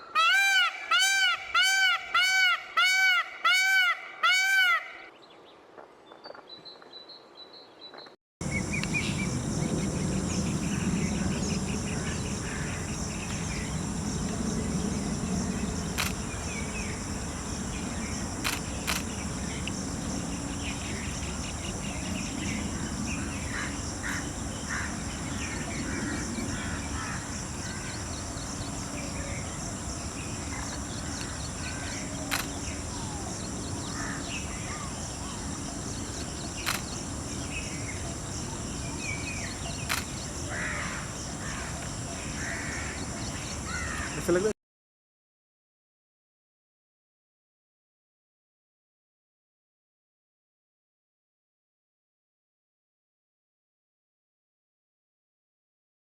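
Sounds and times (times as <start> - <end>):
peacock honking calls: 0.0 - 5.1
small birds chirping: 6.2 - 44.5
steady high whine: 8.4 - 44.4
sharp clicks: 15.9 - 16.3, 18.4 - 19.8, 32.3 - 32.6, 36.6 - 37.0, 39.8 - 40.2.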